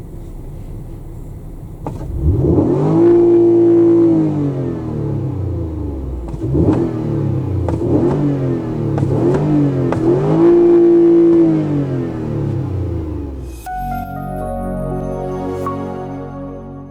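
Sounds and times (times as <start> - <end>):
car engine revving: 1.4 - 13.6.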